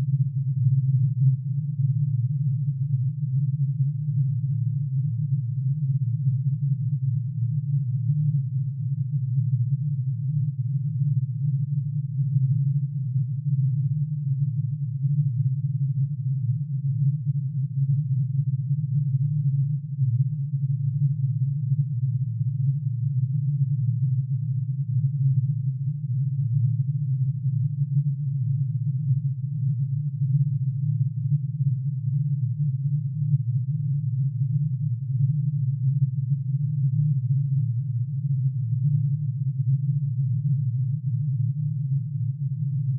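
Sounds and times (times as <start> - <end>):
dense synthesized sine tone hum: 0.0 - 42.9.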